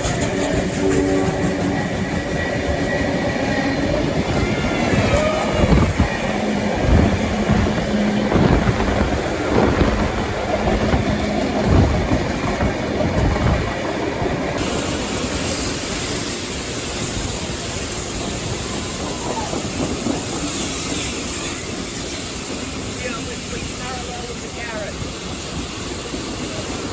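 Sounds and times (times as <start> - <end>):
train wheels clattering on rails: 0.0 - 26.9
steam hiss: 14.6 - 26.9.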